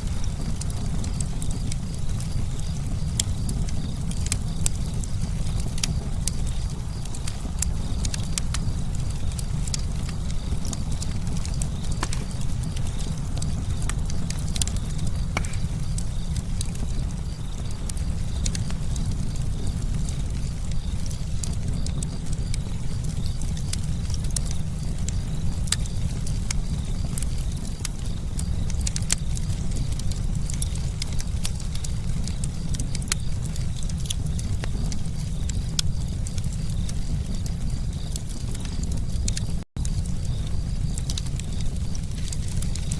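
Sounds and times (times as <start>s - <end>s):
fire crackling and popping: 0.0s - 42.9s
low roar of flames: 0.0s - 42.9s.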